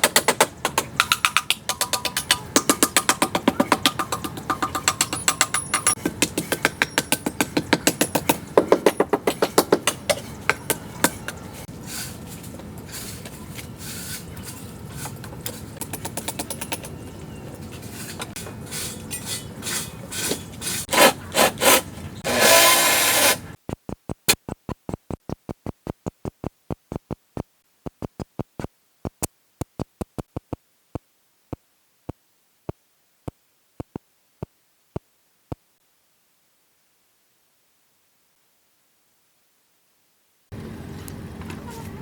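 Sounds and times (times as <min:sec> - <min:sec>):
hand tool rasping strokes: 0:18.0 - 0:23.6.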